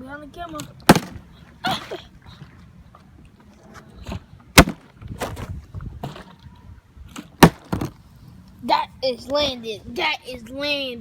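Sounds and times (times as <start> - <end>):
plastic bottle thudding on hard surface: 0.9 - 1.2, 4.6 - 5.5, 7.4 - 8.0.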